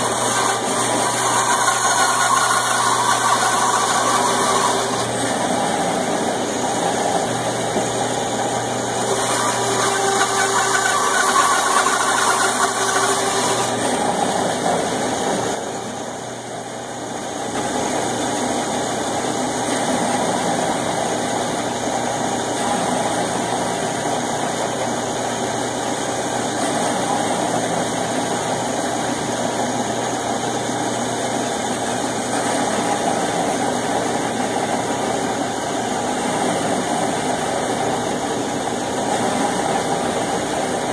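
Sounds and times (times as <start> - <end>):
saw blade cutting wood: 0.0 - 5.9, 8.9 - 15.6
band saw humming: 0.0 - 16.0.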